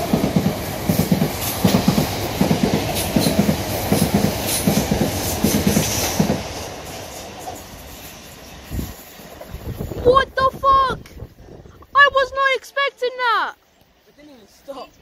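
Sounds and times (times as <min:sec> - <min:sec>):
train wheels clickety-clack: 0:00.0 - 0:09.8.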